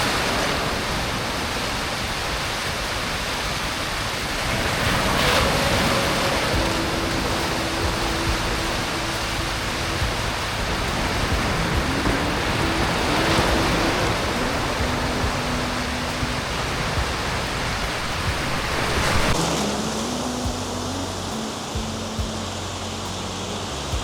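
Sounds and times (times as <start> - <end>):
steady rushing noise: 0.0 - 24.0
soft background music: 0.1 - 24.0.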